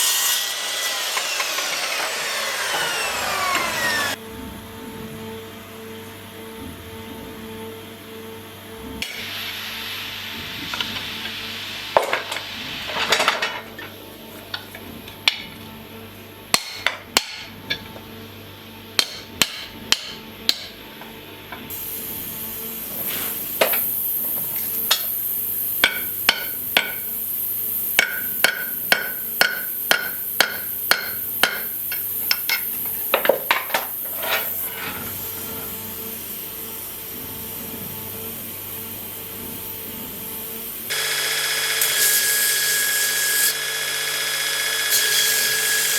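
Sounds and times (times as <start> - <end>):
hammer striking steel: 16.5 - 17.5, 19.0 - 20.8, 25.8 - 27.1, 28.0 - 33.6.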